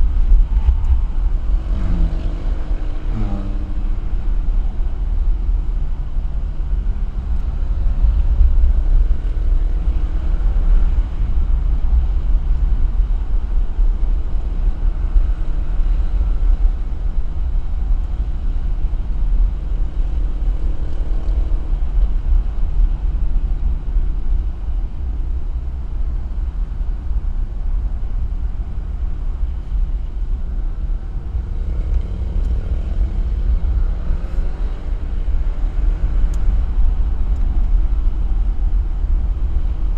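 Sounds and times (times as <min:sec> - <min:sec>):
road and wind noise: 0:00.0 - 0:39.9
car engine revving: 0:00.5 - 0:04.9.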